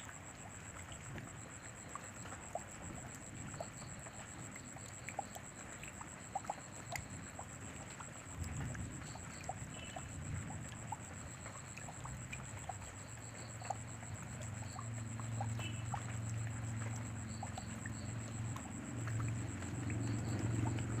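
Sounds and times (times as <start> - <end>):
raindrops plinking close by: 0.0 - 21.0
rain falling: 14.7 - 21.0.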